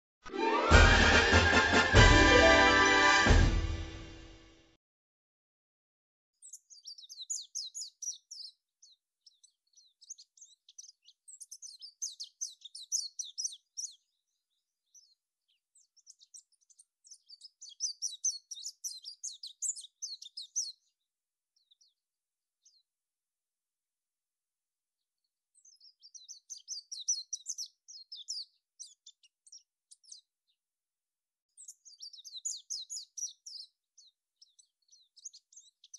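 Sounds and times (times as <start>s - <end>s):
small birds twittering: 6.4s - 22.9s, 25.2s - 30.6s, 31.5s - 35.9s.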